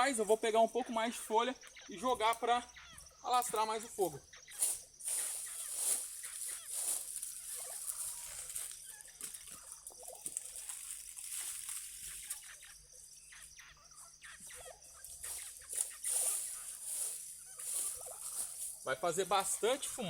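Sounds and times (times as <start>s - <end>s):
dry leaves crackling in fire: 3.4s - 12.6s, 15.0s - 19.8s
leaves tossed onto flames: 10.2s - 12.2s.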